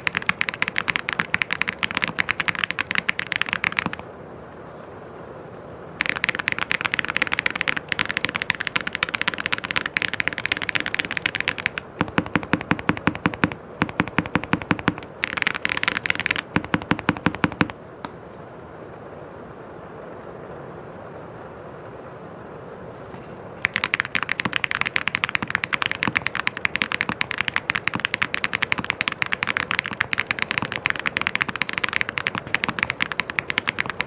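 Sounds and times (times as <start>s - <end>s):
mechanical keyboard typing: 0.0s - 4.1s, 6.0s - 17.8s, 23.6s - 34.0s.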